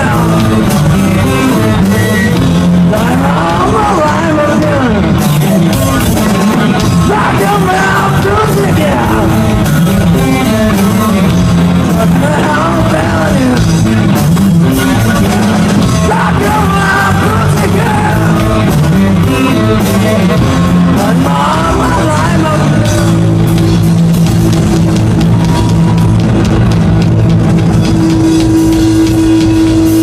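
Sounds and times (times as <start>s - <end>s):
person singing: 0.0s - 23.6s
rock band playing live: 0.0s - 30.0s.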